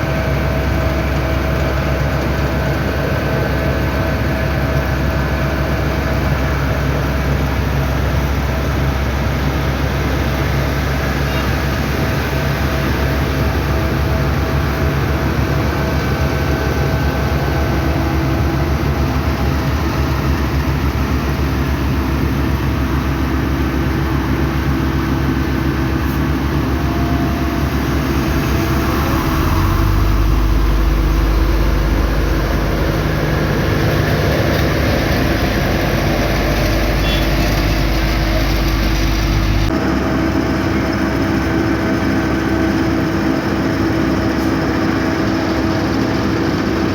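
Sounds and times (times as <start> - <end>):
deeper engine: 0.0 - 46.9
heavy diesel machinery running: 0.0 - 46.9.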